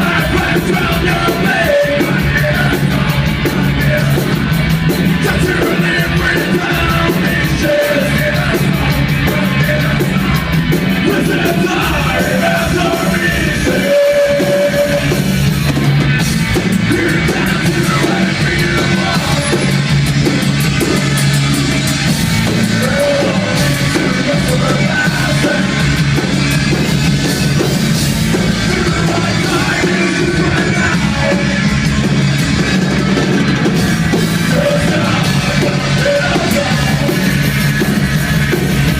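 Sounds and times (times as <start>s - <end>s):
person shouting singing: 0.0s - 4.4s, 5.2s - 10.4s, 11.0s - 15.2s, 16.9s - 19.8s, 22.7s - 25.8s, 28.5s - 32.0s, 34.4s - 37.4s
heavy metal band playing live: 0.0s - 38.9s.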